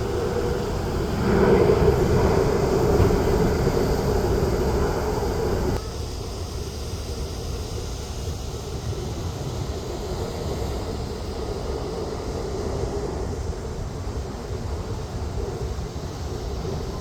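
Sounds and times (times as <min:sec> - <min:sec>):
jet airliner engine rumble: 0:00.0 - 0:05.8.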